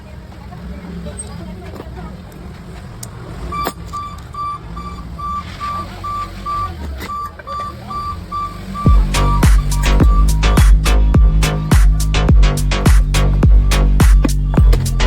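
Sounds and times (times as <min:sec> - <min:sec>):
electronic beeps: 0:03.4 - 0:12.2
low rumble: 0:08.9 - 0:15.0.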